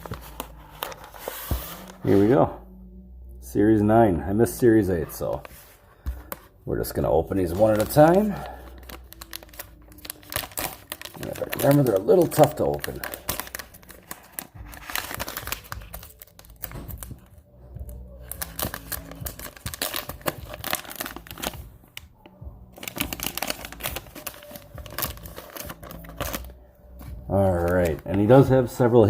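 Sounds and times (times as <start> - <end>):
wrapper tearing and crinkling: 7.5 - 17.1, 18.2 - 21.6, 22.8 - 26.6.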